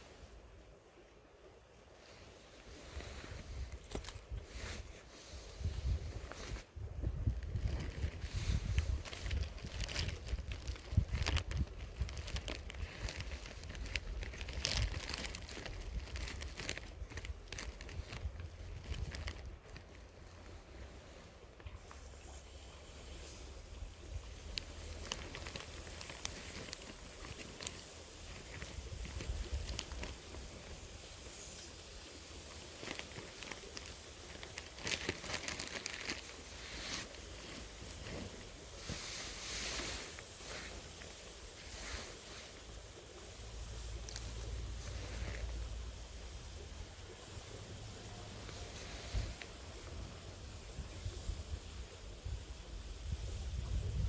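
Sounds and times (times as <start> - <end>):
steady hiss: 0.0 - 54.0
irregular crinkling: 2.0 - 50.9
small clicks and ticks: 24.2 - 37.2, 43.1 - 50.3.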